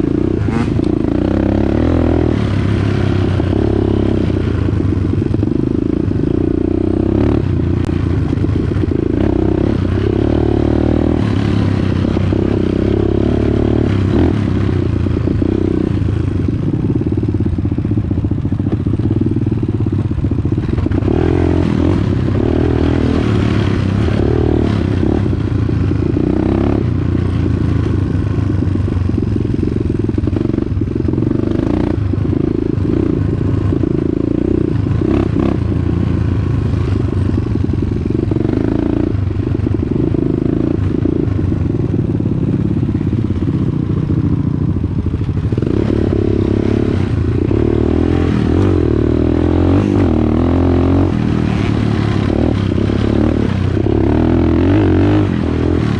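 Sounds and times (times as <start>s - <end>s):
dirt bike engine revving: 0.0s - 4.8s, 5.9s - 16.4s, 20.6s - 27.8s, 45.4s - 55.9s.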